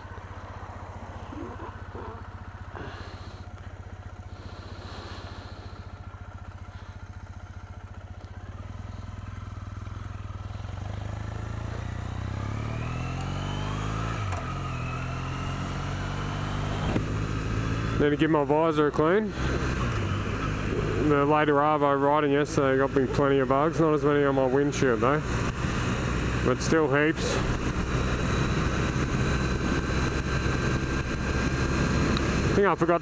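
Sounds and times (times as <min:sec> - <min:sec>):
motorcycle engine idling and revving: 0:00.0 - 0:33.0.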